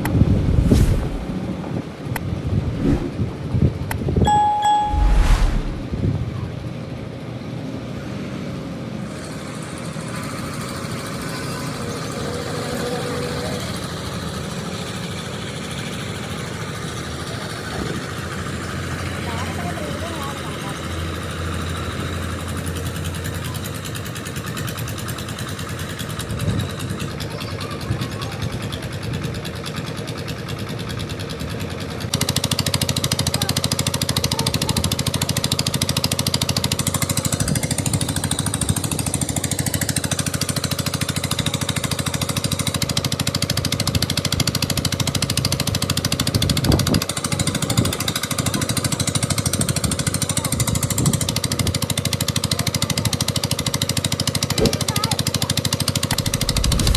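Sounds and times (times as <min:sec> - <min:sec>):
construction machinery rattling: 0:51.8 - 0:56.9.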